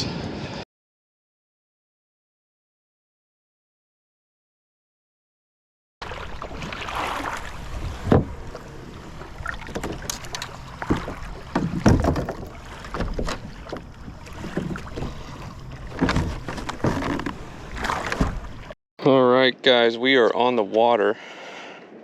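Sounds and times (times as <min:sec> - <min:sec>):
kayak knocks and splashes: 0:06.0 - 0:18.8
wind rumble on microphone: 0:07.4 - 0:18.7.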